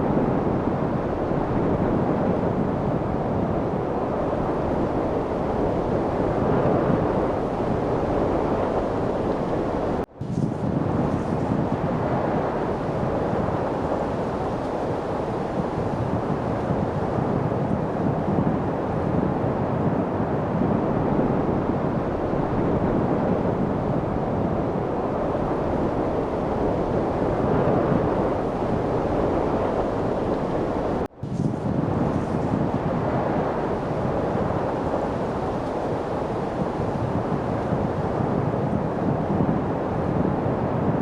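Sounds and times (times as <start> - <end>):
steady wind: 0.0 - 41.0.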